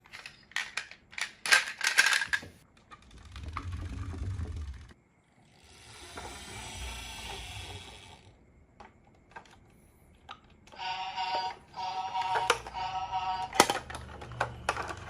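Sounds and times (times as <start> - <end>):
marbles rolling on wooden track: 2.0 - 5.0
toy electronic tune beeping: 10.7 - 13.6.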